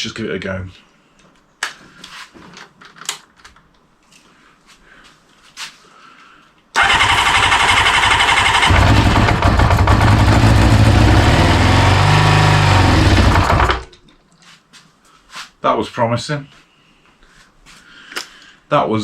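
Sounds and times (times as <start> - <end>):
engine starter cranking: 6.8 - 13.9
motorcycle engine running: 6.8 - 13.9.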